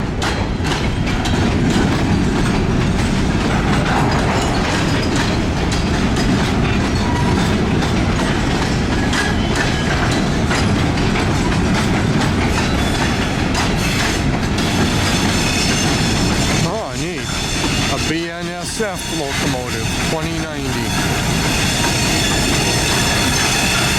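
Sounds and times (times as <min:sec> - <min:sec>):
train wheels clattering over rails: 0:00.0 - 0:23.9.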